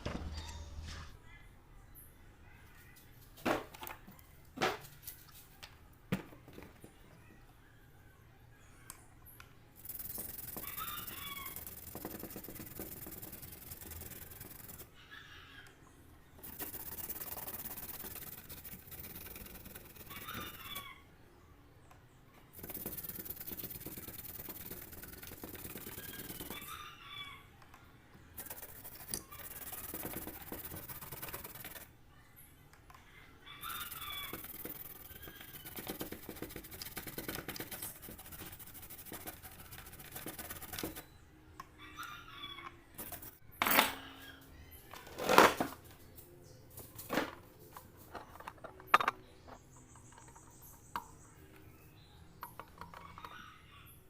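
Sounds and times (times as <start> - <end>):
chickens calling: 9.9 - 11.9, 20.0 - 21.1, 25.7 - 27.7, 33.1 - 35.8, 41.6 - 43.3.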